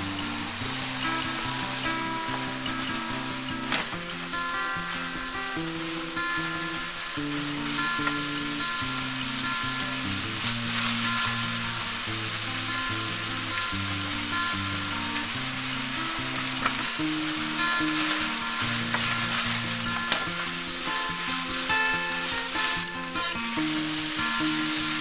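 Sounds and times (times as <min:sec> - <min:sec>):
meat sizzling in a frying pan: 0:00.0 - 0:25.0
soft background music: 0:00.0 - 0:25.0
wooden spatula scraping pan: 0:16.4 - 0:25.0.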